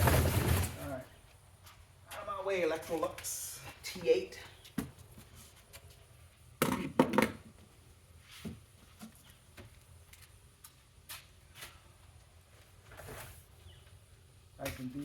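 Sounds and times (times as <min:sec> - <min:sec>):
boxes knocking and thudding: 0:00.0 - 0:00.9.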